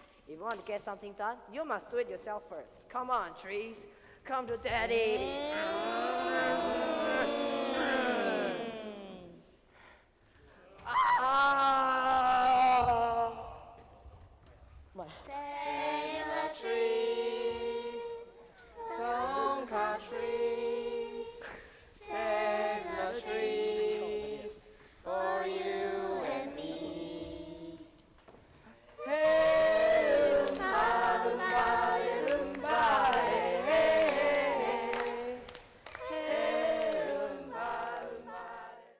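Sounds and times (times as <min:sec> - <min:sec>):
children's choir singing: 0:05.2 - 0:09.4, 0:15.3 - 0:28.1, 0:29.0 - 0:38.9.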